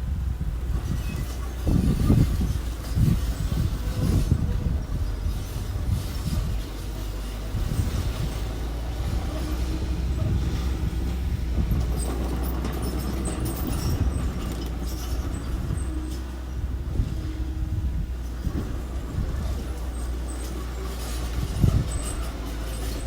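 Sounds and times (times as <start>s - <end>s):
earth-moving machinery engines: 0.0s - 23.0s
light clanks and ticks: 10.6s - 16.4s.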